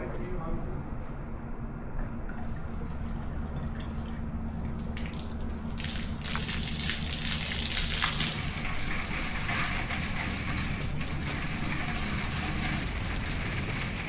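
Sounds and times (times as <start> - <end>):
water spraying from garden hose: 4.9 - 14.0.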